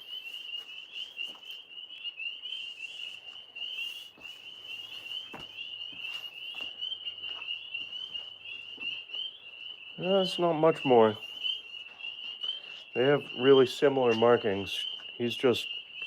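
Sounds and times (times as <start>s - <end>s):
tree frogs trilling: 0.0s - 16.0s.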